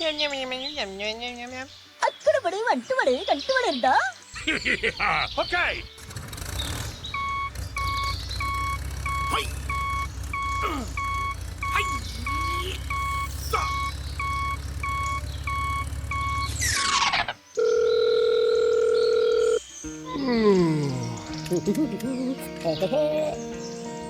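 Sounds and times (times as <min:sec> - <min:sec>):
vehicle reversing beeper: 0:05.9 - 0:21.1
low motor hum: 0:06.0 - 0:17.2
whistling pitch glides: 0:07.1 - 0:17.2.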